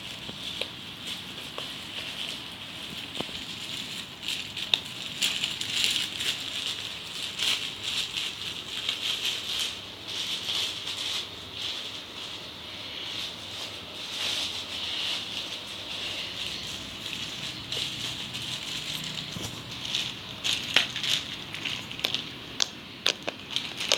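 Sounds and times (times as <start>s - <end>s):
slime crackling and popping: 22.0s - 23.9s.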